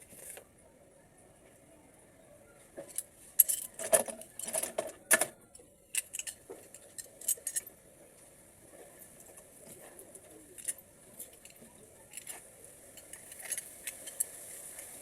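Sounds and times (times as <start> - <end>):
small metal parts clinking: 2.9 - 7.8, 10.3 - 14.5.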